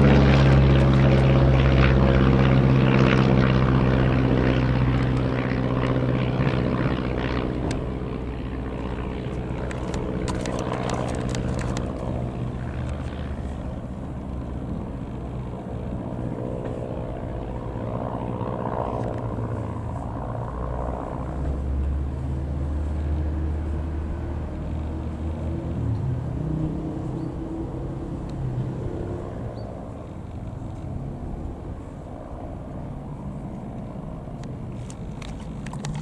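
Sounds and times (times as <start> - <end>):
propeller plane droning overhead: 0.0 - 36.0.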